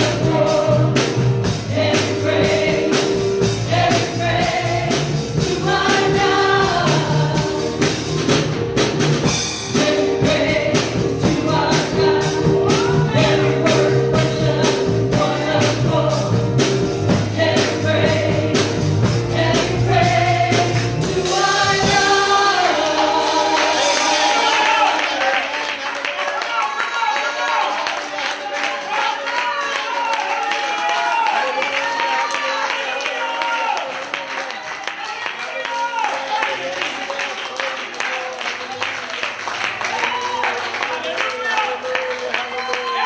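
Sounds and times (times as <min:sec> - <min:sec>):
bass line: 0:00.0 - 0:24.9
steady beat: 0:00.0 - 0:25.0
choir singing gospel: 0:00.0 - 0:26.0.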